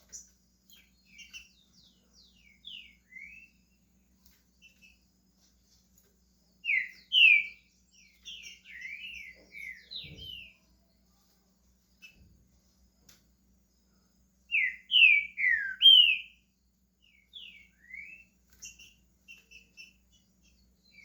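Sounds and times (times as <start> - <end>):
bird whistling song: 0.0 - 3.6, 6.6 - 10.6, 14.5 - 16.4, 17.0 - 21.0.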